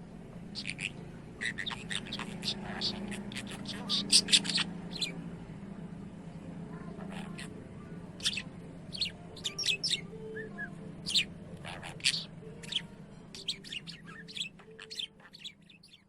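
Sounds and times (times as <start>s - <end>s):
budgerigar chirping: 0.5s - 5.2s, 7.0s - 7.5s, 8.2s - 10.1s, 11.0s - 16.0s.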